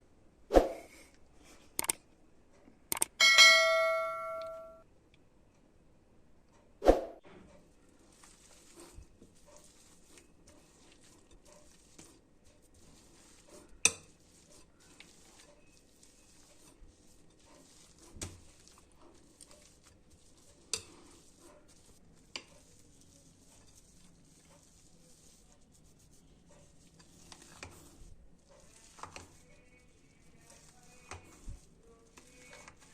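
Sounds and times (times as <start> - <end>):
utensil clinking on dish: 3.2 - 4.8.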